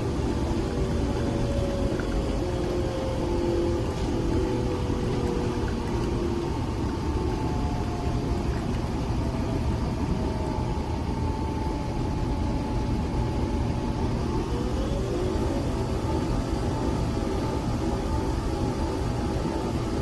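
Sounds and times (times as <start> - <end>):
coffee machine motor whir: 0.0 - 8.4, 14.2 - 20.0.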